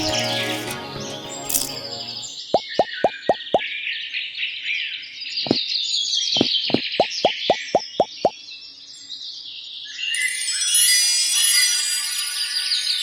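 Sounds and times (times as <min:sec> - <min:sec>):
tinkling musical sound: 0:00.0 - 0:02.4, 0:10.0 - 0:13.0
birds chirping: 0:06.4 - 0:08.3.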